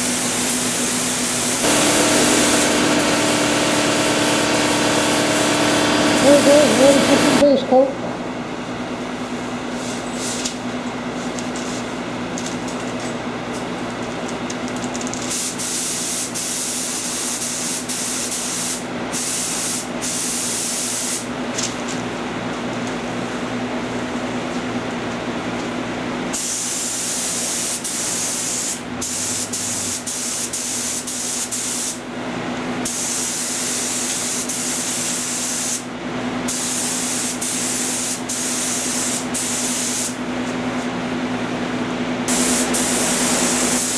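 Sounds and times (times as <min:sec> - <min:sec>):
spray gun hissing: 0:00.0 - 0:07.4, 0:26.4 - 0:32.0, 0:36.5 - 0:40.2, 0:42.3 - 0:43.9.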